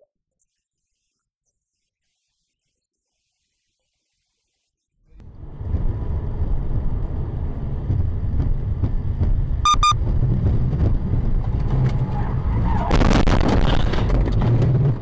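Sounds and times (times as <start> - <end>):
car engine and road rumble: 5.1 - 15.0
short high beeps: 9.7 - 10.0.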